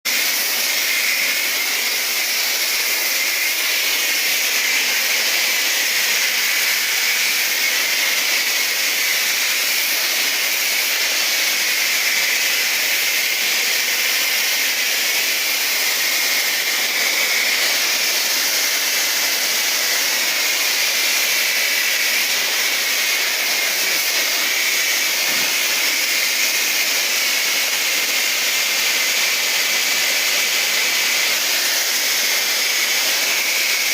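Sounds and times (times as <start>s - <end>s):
pressure washer spraying water: 0.1s - 33.9s.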